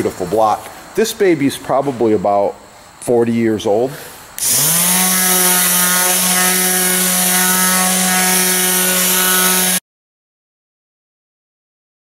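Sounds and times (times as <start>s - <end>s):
electric palm sander humming: 4.4s - 9.8s
sandpaper hissing on wood: 4.4s - 9.8s.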